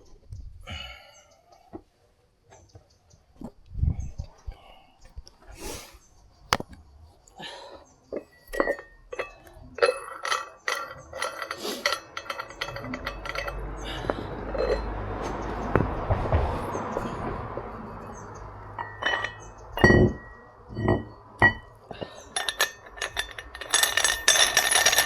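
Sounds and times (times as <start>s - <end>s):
metal weight plates clinking: 8.2s - 16.0s, 16.7s - 25.0s.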